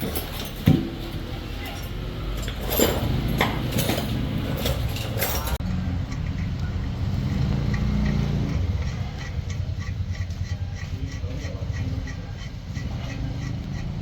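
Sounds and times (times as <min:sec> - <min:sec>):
metal tools clinking: 0:00.0 - 0:06.5
low mechanical rumble: 0:00.0 - 0:14.0
faint regular ticks: 0:06.0 - 0:14.0.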